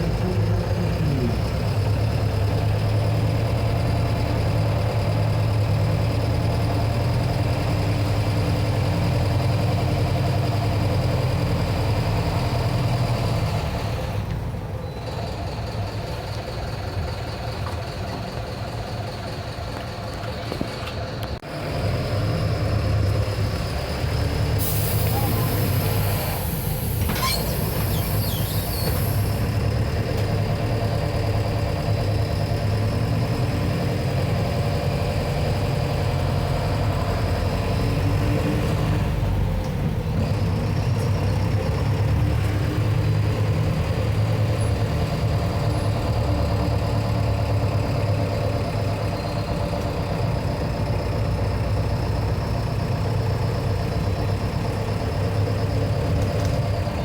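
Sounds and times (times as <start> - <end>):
bus diesel engine running: 0.0 - 57.0
air hiss: 24.6 - 29.4.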